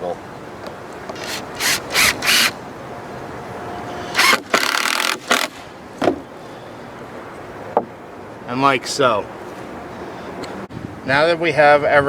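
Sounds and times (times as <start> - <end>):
power drill boring into wood: 1.2 - 2.6, 4.1 - 5.6.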